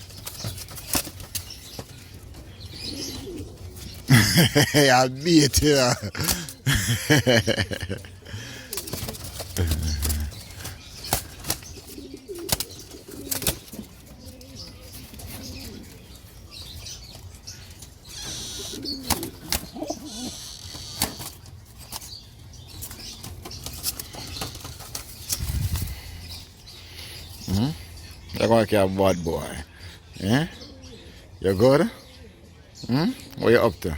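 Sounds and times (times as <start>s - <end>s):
bird flapping wings: 0.0s - 1.9s, 8.7s - 14.0s
low bird calls: 0.0s - 33.9s.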